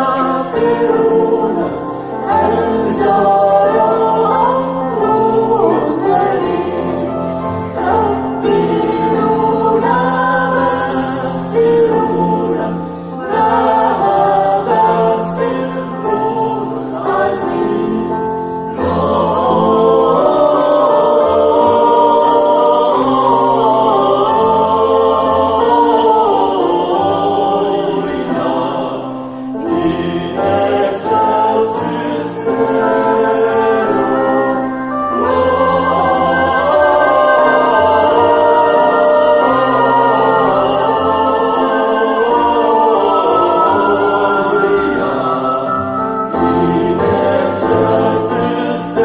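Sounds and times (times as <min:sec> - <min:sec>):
choir singing: 0:00.0 - 0:49.0
low accompanying notes: 0:29.6 - 0:48.7.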